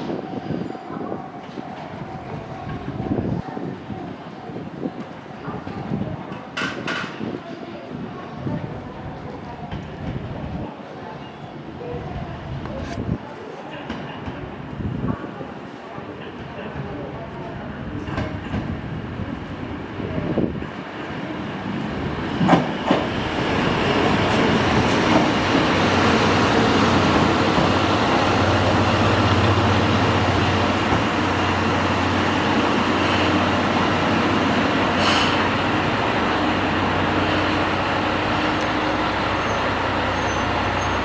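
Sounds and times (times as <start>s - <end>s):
diesel railcar engine drone: 16.4s - 41.0s.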